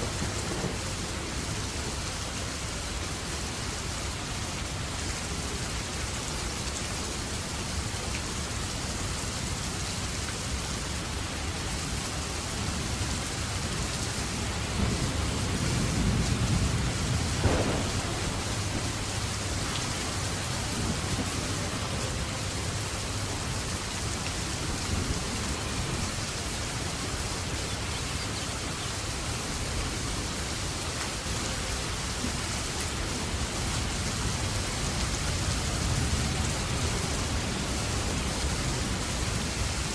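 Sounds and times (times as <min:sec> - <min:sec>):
steady rain falling: 0:00.0 - 0:39.9
thunder rumble: 0:14.4 - 0:26.2.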